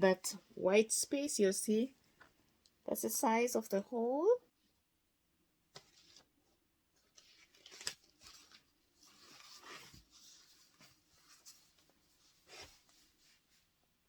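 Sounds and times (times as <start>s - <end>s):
paper and fabric rustling: 5.7s - 13.8s.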